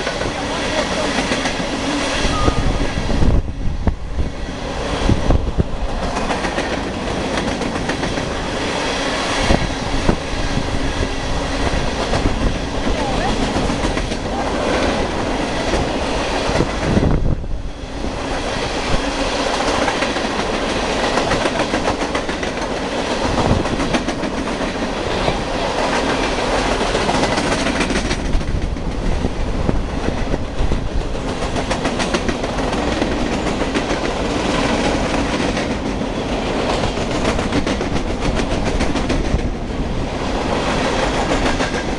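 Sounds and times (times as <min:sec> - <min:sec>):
train wheels rumbling on rail: 0:00.0 - 0:41.9
wheels clicking over rail joints: 0:19.5 - 0:36.0.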